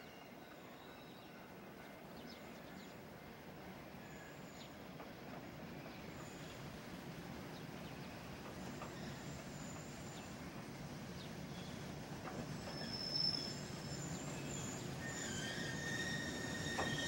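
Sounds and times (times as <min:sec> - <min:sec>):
train wheels rumbling on rail: 0:00.7 - 0:17.0
high wheel squeals: 0:12.5 - 0:17.0.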